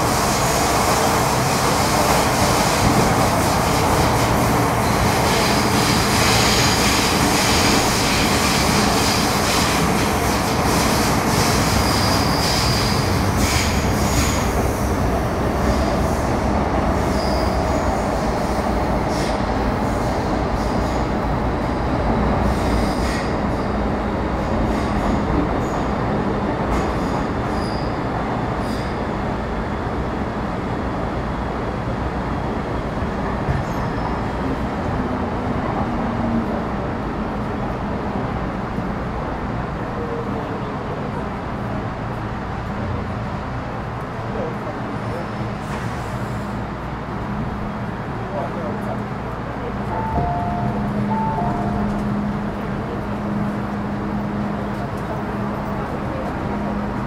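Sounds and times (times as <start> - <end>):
train wheels rumbling: 0.0 - 29.7, 44.1 - 57.0
wheel squeal: 11.8 - 14.4, 17.1 - 17.6.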